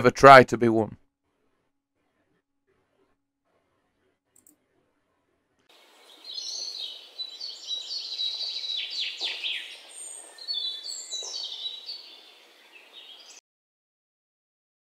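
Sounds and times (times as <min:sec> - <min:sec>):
birds chirping and trilling: 0:05.7 - 0:13.4
steady outdoor hiss: 0:05.7 - 0:13.4.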